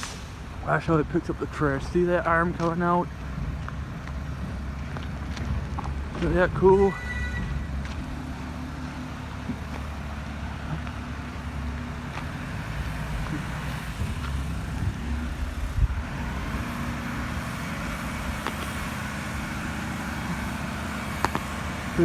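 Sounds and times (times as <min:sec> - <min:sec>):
garbage truck engine rumbling: 0:00.0 - 0:22.0.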